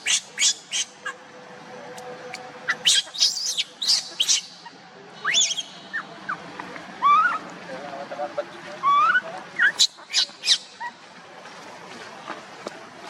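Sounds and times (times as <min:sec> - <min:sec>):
young monkey squealing: 0:00.0 - 0:01.2, 0:02.7 - 0:06.4, 0:07.0 - 0:07.4, 0:08.8 - 0:11.0.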